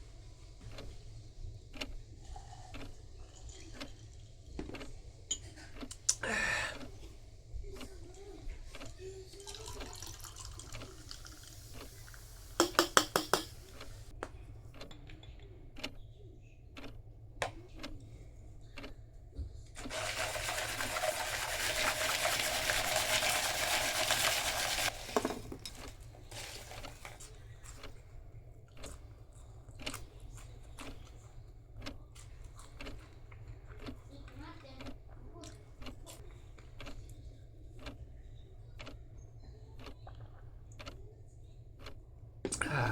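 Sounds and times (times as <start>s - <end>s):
running liquid: 2.2s - 4.6s, 8.8s - 13.3s, 19.8s - 27.3s
tableware clicks: 4.7s - 5.6s, 12.6s - 13.9s.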